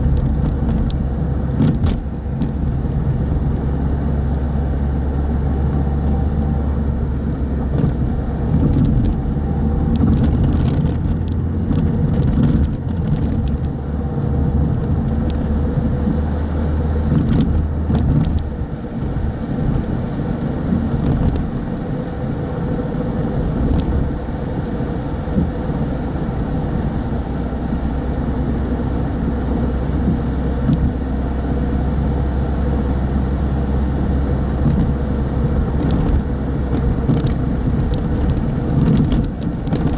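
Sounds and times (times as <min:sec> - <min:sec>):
car engine and road rumble: 0:00.0 - 0:39.9
light ticks: 0:35.8 - 0:39.9.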